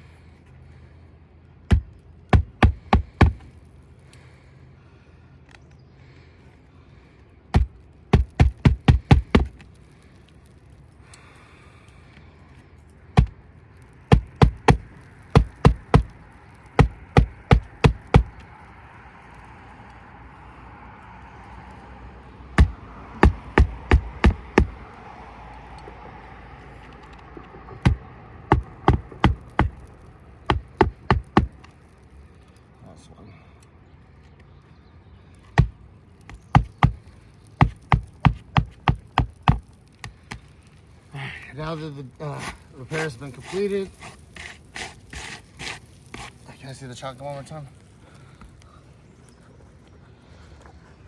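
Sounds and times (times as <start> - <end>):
hammer driving nails: 1.7 - 3.5, 7.6 - 9.6, 14.1 - 16.2, 16.8 - 18.4, 22.6 - 24.8, 27.8 - 29.9, 30.5 - 31.7, 35.6 - 37.0, 37.6 - 40.4.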